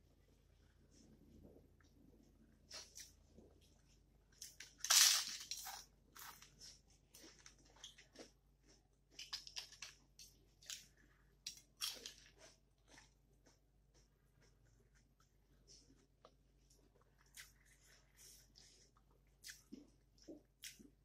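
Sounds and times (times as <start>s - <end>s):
chewing: 5.6s - 21.0s.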